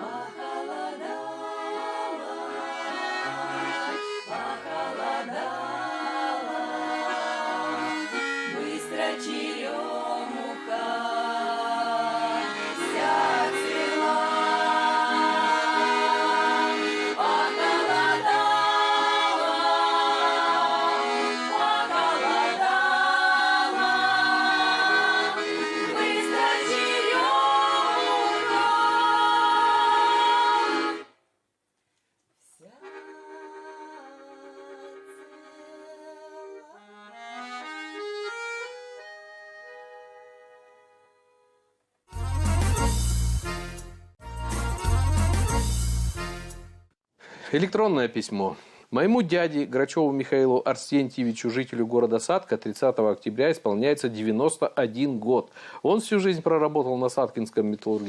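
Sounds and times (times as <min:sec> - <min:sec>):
people singing: 0:00.0 - 0:31.1
accordion: 0:00.0 - 0:31.2, 0:32.7 - 0:47.6.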